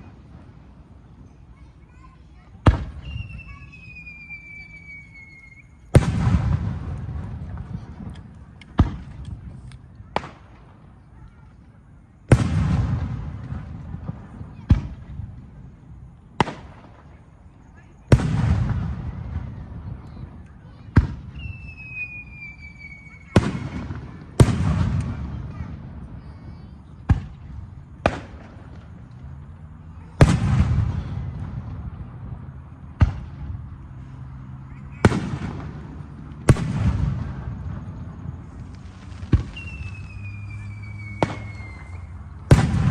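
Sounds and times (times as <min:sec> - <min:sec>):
fireworks burst crackling and rumbling: 0:00.0 - 0:42.9
fireworks bang: 0:02.0 - 0:04.7, 0:05.9 - 0:11.4, 0:12.3 - 0:15.3, 0:18.1 - 0:29.0, 0:30.1 - 0:33.7, 0:34.9 - 0:42.9.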